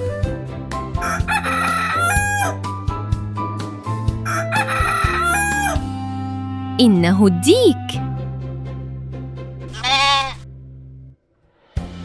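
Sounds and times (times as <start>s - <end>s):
soft background music: 0.0s - 9.7s
rooster crowing: 1.0s - 2.6s, 4.3s - 5.9s, 9.8s - 10.4s.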